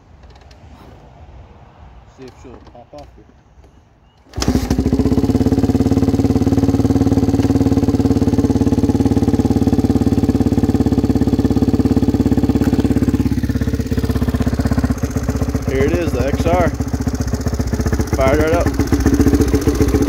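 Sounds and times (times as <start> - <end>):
motorcycle engine running: 4.4 - 20.0.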